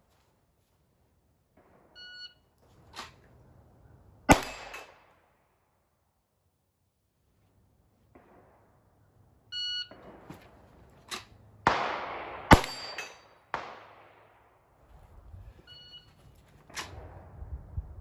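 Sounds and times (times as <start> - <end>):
pistol shots echoing: 4.3 - 5.1, 11.6 - 14.6
steel plate ringing clang: 12.5 - 13.3.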